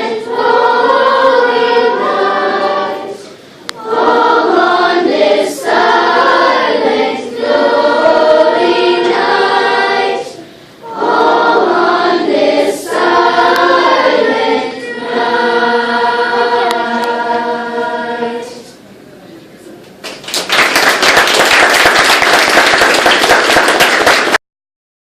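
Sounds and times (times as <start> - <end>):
choir singing held phrases: 0.0 - 18.8.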